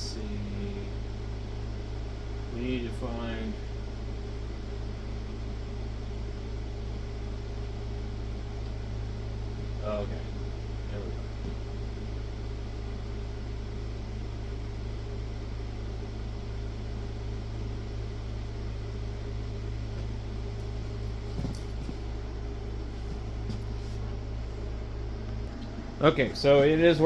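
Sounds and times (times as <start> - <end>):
electrical hum with fan whir: 0.0 - 27.0.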